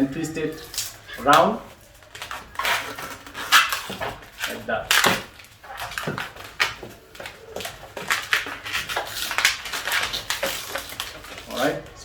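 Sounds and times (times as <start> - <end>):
balloons squeaking and rubbing: 0.0 - 12.0.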